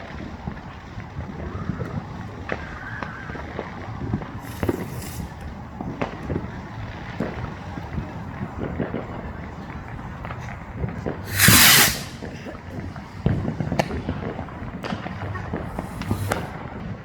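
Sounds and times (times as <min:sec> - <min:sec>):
firework bangs and pops: 0:00.0 - 0:17.0
hissing burst: 0:04.4 - 0:05.4, 0:11.3 - 0:12.4, 0:15.8 - 0:16.5.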